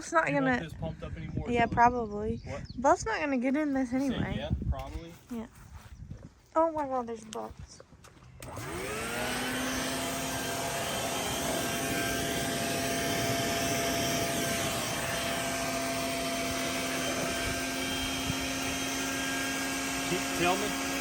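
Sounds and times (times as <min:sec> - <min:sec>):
electric blower motor running: 0:08.4 - 0:21.0.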